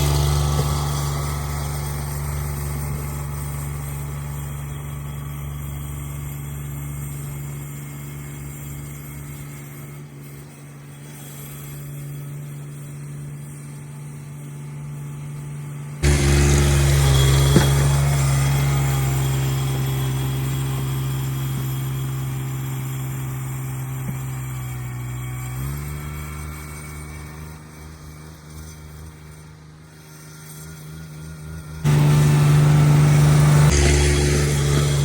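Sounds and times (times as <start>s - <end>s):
garden tractor engine running: 0.0s - 35.0s.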